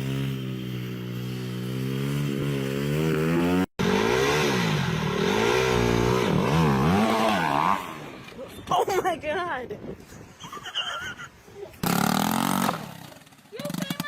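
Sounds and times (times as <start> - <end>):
minibike engine revving: 0.0 - 8.4, 11.8 - 14.0.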